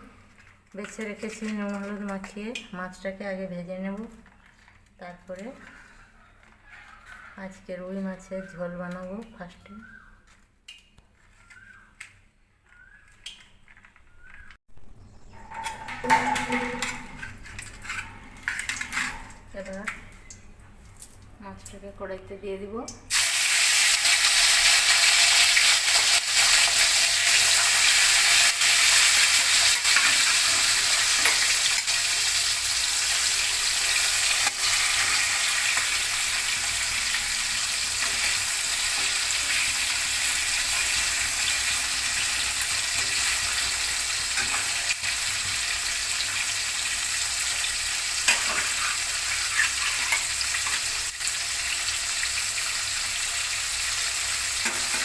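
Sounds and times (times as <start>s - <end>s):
fish sizzling in hot oil: 23.1s - 55.0s.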